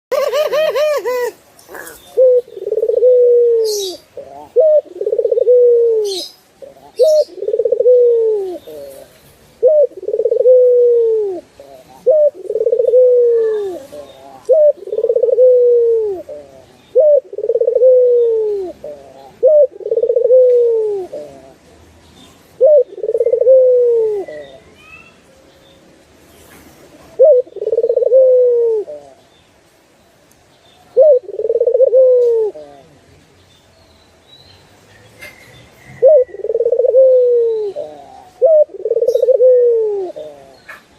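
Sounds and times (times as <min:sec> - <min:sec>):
dove cooing: 0:00.1 - 0:21.6, 0:22.6 - 0:24.6, 0:27.1 - 0:29.2, 0:31.0 - 0:33.0, 0:35.2 - 0:40.9.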